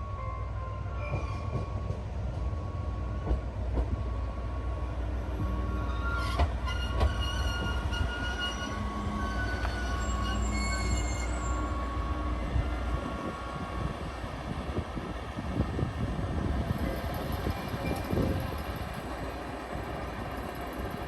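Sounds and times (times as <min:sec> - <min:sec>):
train rumble on rails: 0:00.0 - 0:21.0
train wheels squealing: 0:00.2 - 0:02.0, 0:05.5 - 0:12.2, 0:16.8 - 0:19.2.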